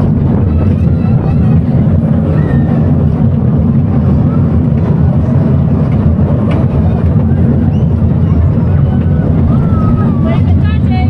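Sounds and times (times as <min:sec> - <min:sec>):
amusement ride rumbling: 0:00.0 - 0:11.0
wind buffeting microphone: 0:00.0 - 0:11.0.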